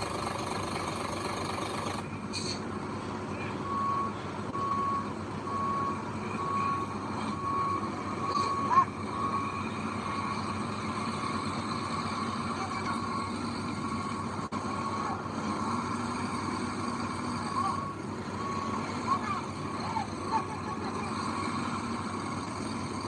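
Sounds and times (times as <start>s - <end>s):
diesel engine running: 0.0s - 23.0s
reversing beeper: 3.4s - 23.0s.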